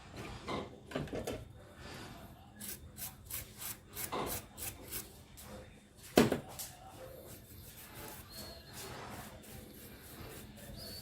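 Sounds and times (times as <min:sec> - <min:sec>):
quick scraping strokes: 0:07.3 - 0:11.0.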